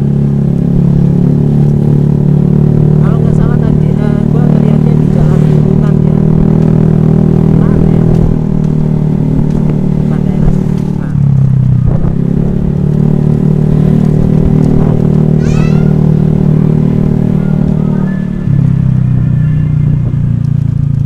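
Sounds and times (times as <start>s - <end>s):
scooter engine running: 0.0s - 21.0s
brief high descending tone: 15.4s - 16.0s, 17.2s - 19.8s.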